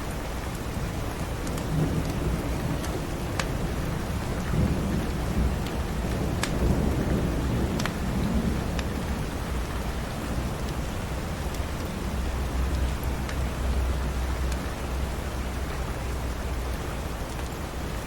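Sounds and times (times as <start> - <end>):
steady rain: 0.0 - 18.0
wood fire popping: 5.5 - 6.6.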